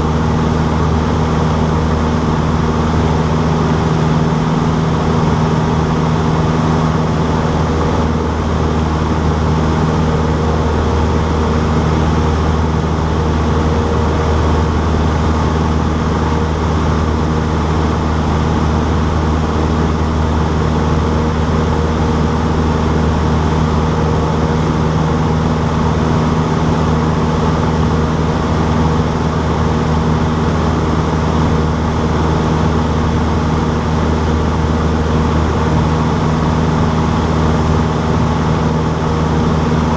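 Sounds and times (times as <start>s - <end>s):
airplane propeller engine drone: 0.0s - 39.9s.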